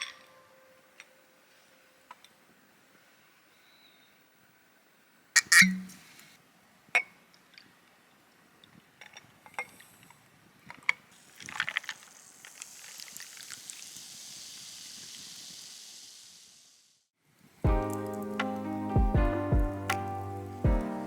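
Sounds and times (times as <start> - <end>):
liquid pouring into glass: 11.2 - 15.4.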